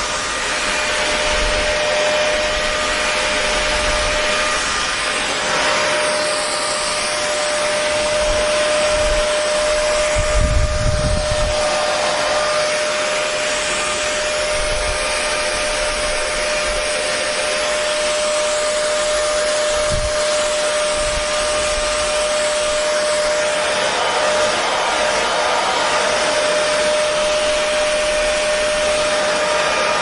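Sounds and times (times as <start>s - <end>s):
hair dryer running: 0.0s - 30.0s.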